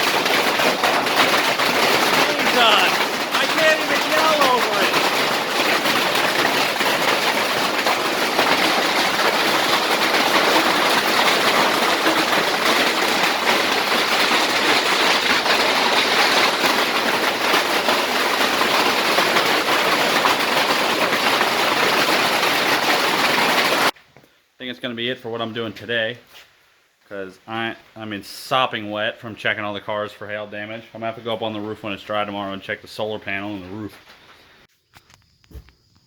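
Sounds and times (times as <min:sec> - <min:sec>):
hail clattering on hard surfaces: 0:00.0 - 0:24.0.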